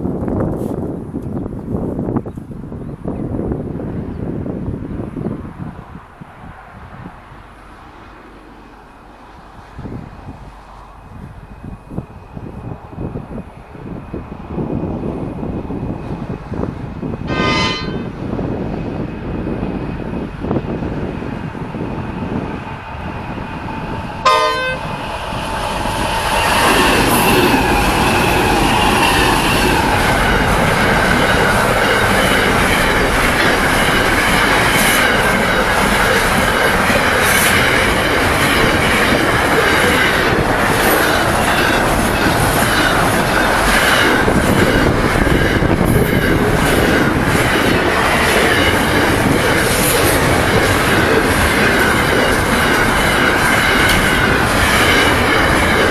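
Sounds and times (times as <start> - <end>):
high wheel squeal: 17.3 - 18.1
train horn toot: 17.3 - 18.2, 24.2 - 25.0
train wheels clicking over rails: 24.9 - 55.9.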